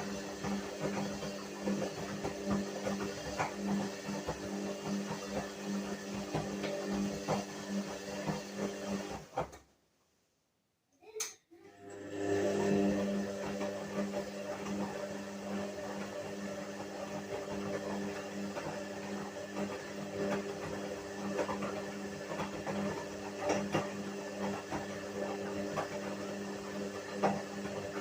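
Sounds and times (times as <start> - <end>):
washing machine motor hum: 0.0 - 9.6, 11.6 - 28.0.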